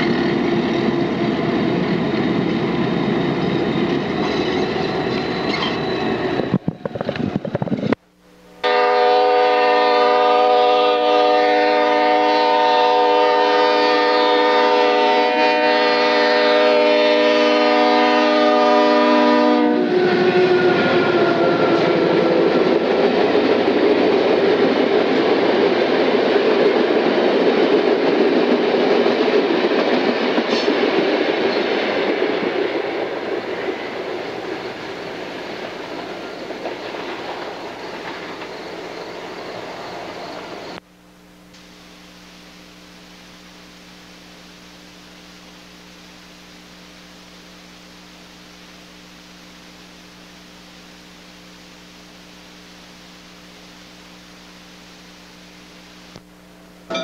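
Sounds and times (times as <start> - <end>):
locomotive air horn: 8.6 - 22.6
train cars clattering over rails: 35.6 - 39.2.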